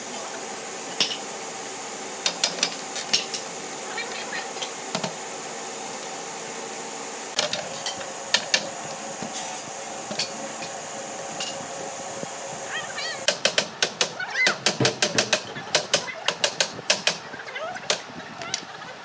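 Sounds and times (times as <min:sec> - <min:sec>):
steady hum: 0:00.0 - 0:13.8.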